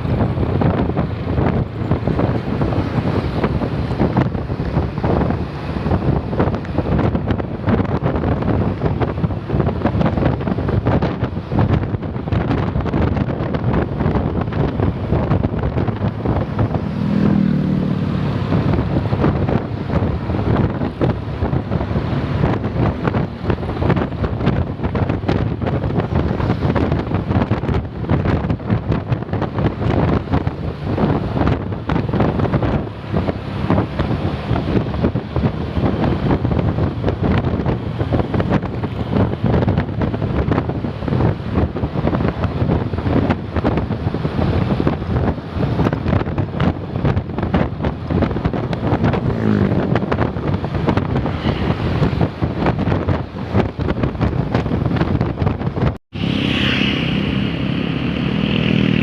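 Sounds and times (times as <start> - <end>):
road vehicle noise: 0.0 - 59.0
wind buffeting microphone: 0.0 - 59.0
low engine drone: 56.1 - 59.0.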